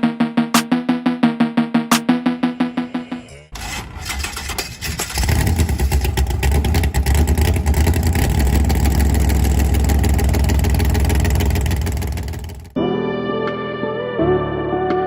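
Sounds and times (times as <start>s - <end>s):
drag car engine rumbling: 3.5s - 12.8s.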